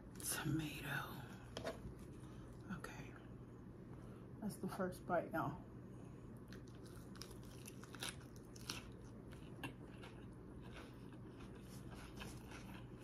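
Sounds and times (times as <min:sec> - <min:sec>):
person chewing salad: 0:06.4 - 0:13.0.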